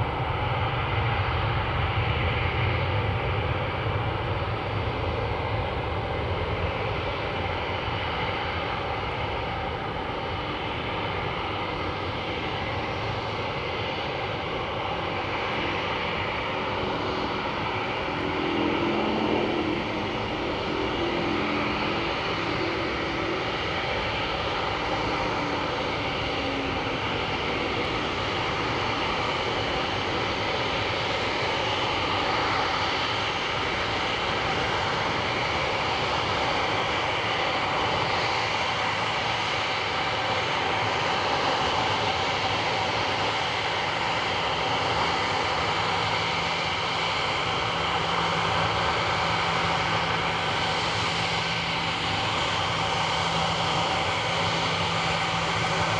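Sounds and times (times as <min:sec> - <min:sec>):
jet engines running loudly: 0:00.0 - 0:55.9
engine whining tones: 0:14.5 - 0:32.7.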